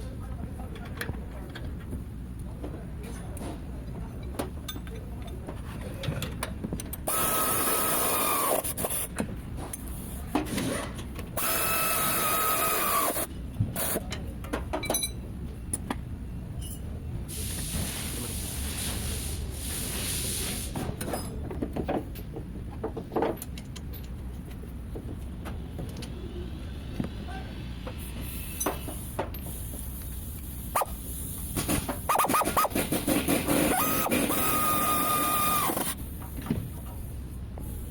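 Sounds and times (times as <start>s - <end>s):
air tool whining: 7.0s - 9.1s, 11.4s - 14.0s, 28.1s - 36.8s.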